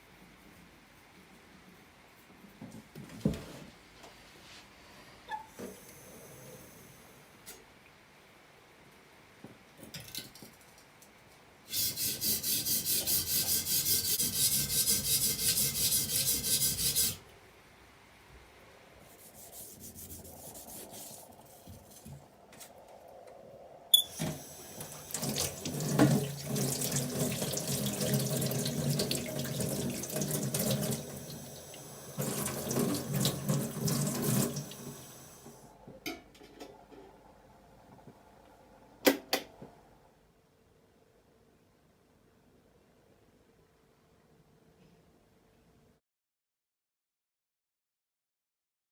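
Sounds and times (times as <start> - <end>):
hands rubbing under water: 19.1 - 22.8
tap water running into sink: 24.1 - 35.3.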